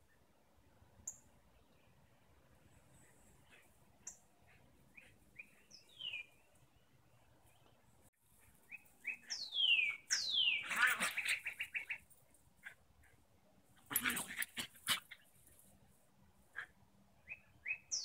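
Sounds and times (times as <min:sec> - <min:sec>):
songbird singing: 0:01.0 - 0:02.1, 0:02.7 - 0:13.2, 0:17.2 - 0:18.0.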